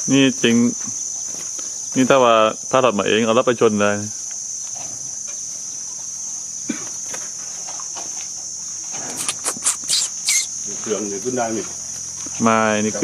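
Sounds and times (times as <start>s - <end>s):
crickets droning: 0.0s - 13.0s
short sharp high chirps: 9.2s - 10.5s.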